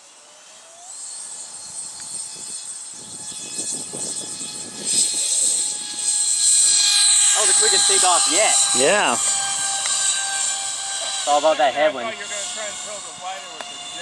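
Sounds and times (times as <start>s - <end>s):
model jet engine whine: 0.0s - 14.0s.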